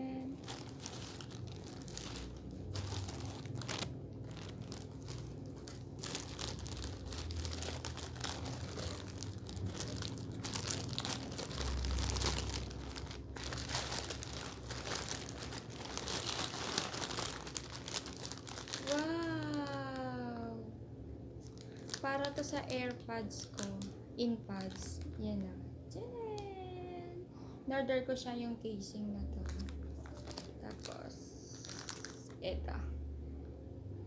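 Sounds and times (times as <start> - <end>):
packaging crinkling and tearing: 0.2 - 20.2, 21.4 - 23.9, 24.6 - 25.2, 29.3 - 32.4.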